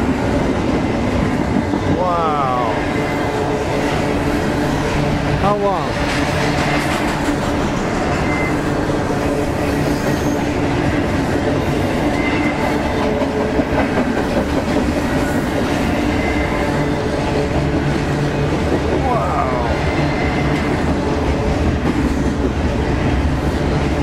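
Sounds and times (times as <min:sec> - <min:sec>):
freight train wheels rumbling: 0:00.0 - 0:24.0
high wheel squeals: 0:07.7 - 0:10.6, 0:12.0 - 0:12.8.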